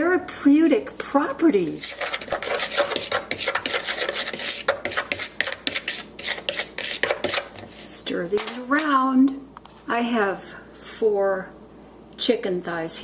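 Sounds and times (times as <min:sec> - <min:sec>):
spoon scraping in dish: 0:01.8 - 0:08.9.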